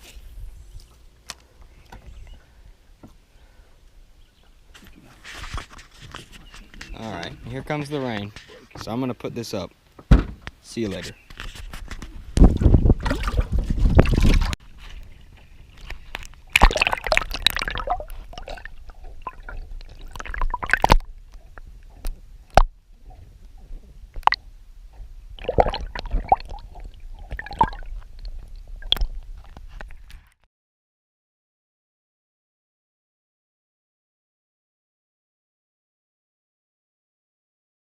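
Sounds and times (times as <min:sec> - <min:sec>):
camera handling rubbing and knocks: 0:04.8 - 0:08.9, 0:10.3 - 0:12.5.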